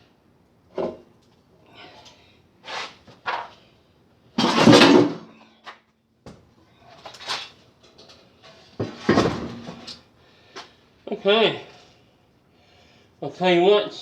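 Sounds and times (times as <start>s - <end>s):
loud metal clunk and scrape: 4.4s - 5.3s, 8.8s - 9.9s.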